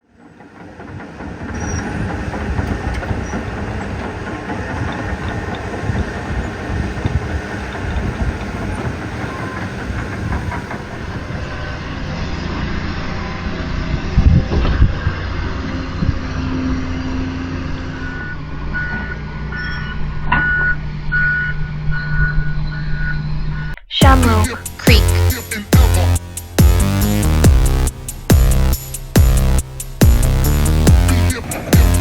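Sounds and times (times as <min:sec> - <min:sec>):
heavy machinery rumbling: 0:00.1 - 0:22.8, 0:24.0 - 0:32.0.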